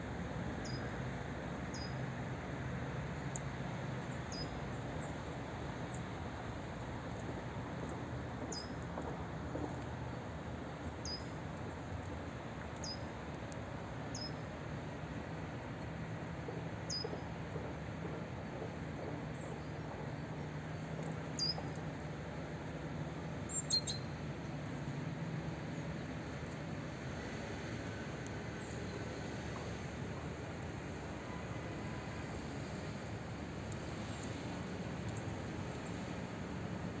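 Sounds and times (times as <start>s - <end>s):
songbird call notes: 1.7s - 2.0s, 14.1s - 14.4s, 16.9s - 17.2s, 21.4s - 21.7s, 23.5s - 24.1s.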